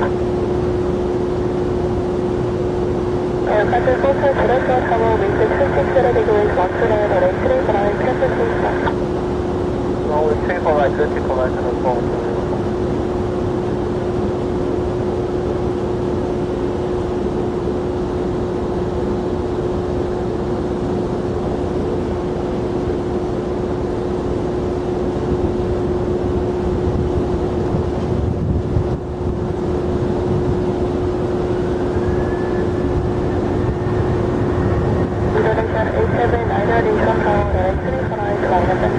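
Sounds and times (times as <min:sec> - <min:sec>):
rising engine whine: 0:00.0 - 0:14.1, 0:29.2 - 0:38.9
jet engines roaring: 0:00.0 - 0:17.7, 0:18.4 - 0:38.9.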